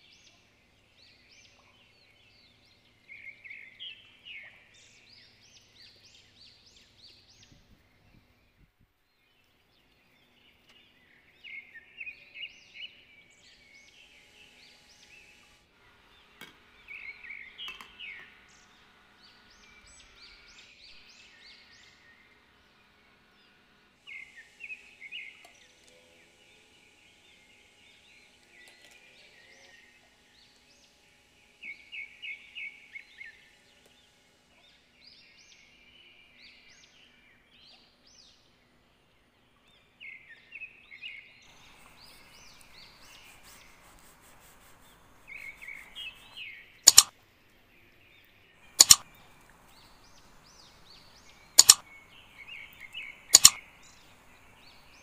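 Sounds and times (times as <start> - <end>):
small birds chirping: 34.6 - 55.0
faint steady hiss: 41.5 - 55.0
sharp loud clicks: 46.8 - 47.1, 48.8 - 51.9, 52.8 - 53.7.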